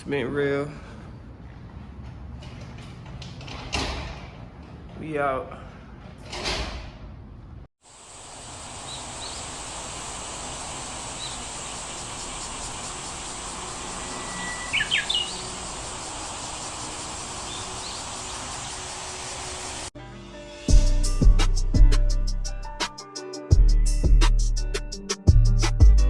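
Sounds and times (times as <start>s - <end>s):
steady outdoor hiss: 7.8s - 19.9s
bird chirps: 8.7s - 19.6s.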